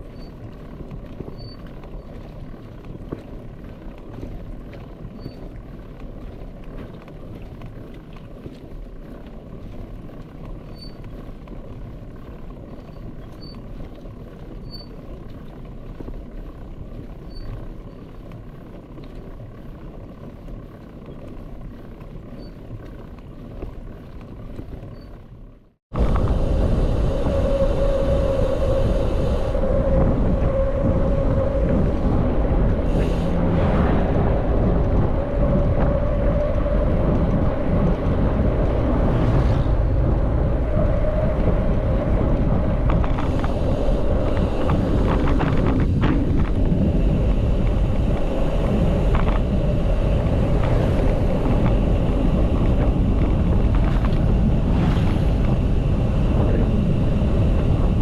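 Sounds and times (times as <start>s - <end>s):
bike tyre road noise: 0.0s - 58.0s
wind noise on microphone: 0.0s - 58.0s
steady hum: 26.0s - 58.0s.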